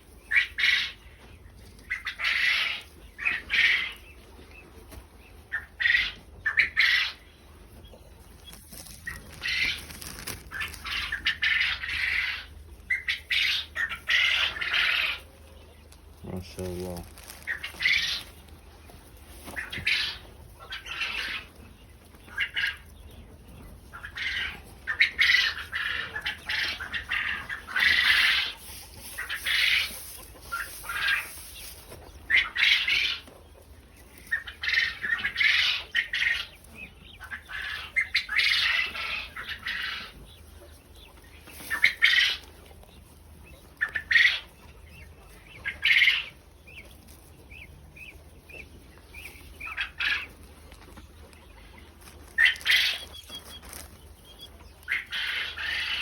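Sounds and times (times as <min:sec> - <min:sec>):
quail squawking: 0:00.0 - 0:56.0
wings fluttering: 0:08.2 - 0:11.7.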